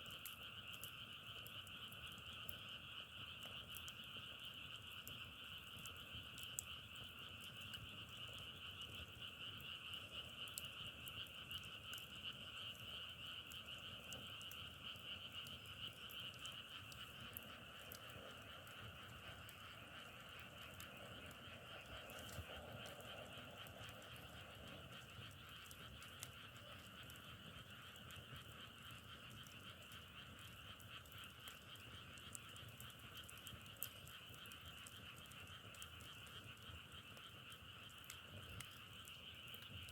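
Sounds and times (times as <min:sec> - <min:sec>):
frogs trilling: 0:00.0 - 0:39.9
faint clicks: 0:03.3 - 0:39.9.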